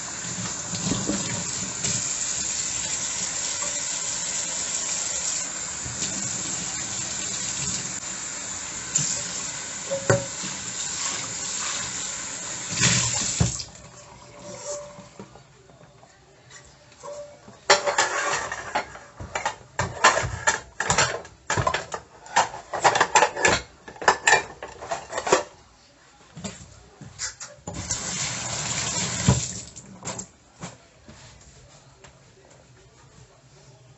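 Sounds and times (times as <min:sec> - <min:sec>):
dishes clattering in a sink: 0:00.4 - 0:05.2, 0:09.8 - 0:12.0, 0:17.0 - 0:25.5, 0:27.2 - 0:28.0.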